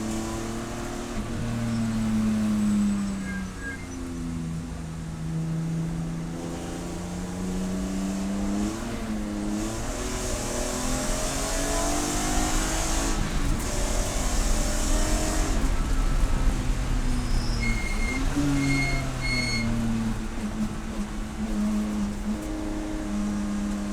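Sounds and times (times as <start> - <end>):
race car engine revving: 6.1 - 23.9.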